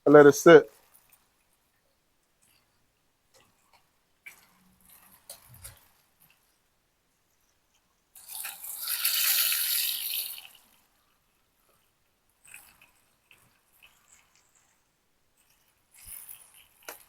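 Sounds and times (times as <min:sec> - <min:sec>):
hot oil sizzling: 0:08.2 - 0:11.0.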